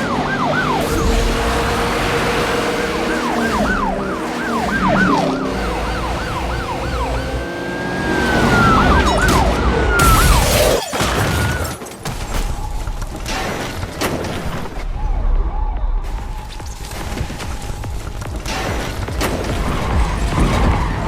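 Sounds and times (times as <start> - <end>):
sirens yelping and wailing: 0.0 - 21.0.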